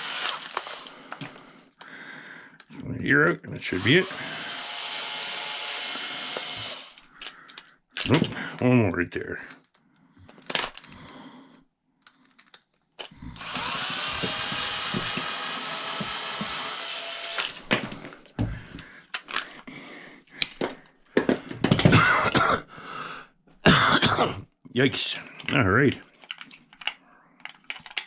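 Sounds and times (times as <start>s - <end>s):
power drill whining: 0.0s - 1.4s, 3.7s - 7.1s, 13.2s - 18.2s
small metal parts clicking: 26.2s - 28.0s.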